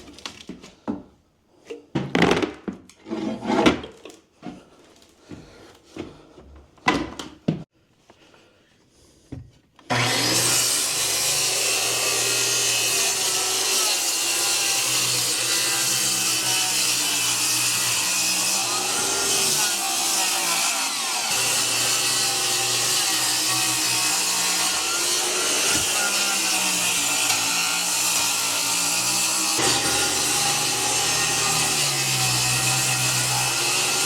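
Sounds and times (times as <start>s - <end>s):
power saw cutting wood: 9.9s - 34.0s.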